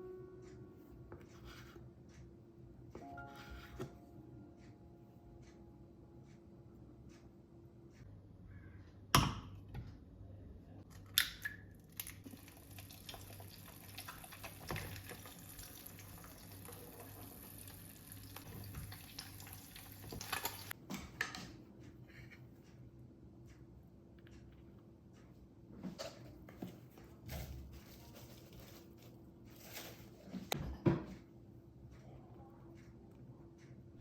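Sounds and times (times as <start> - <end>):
water running from tap: 12.2 - 20.7.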